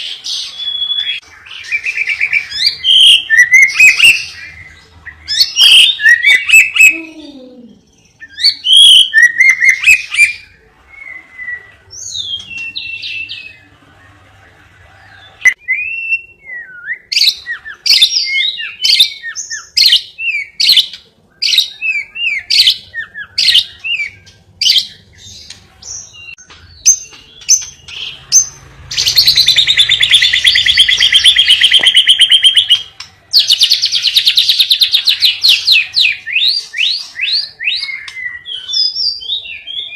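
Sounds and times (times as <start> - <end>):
cage bird singing: 0.0 - 39.9
bird rapid trill: 26.2 - 39.2.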